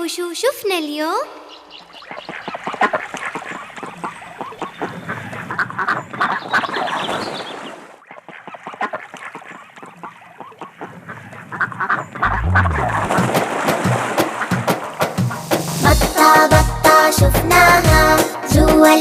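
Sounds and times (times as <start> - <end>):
ducks quacking: 1.4 - 13.3.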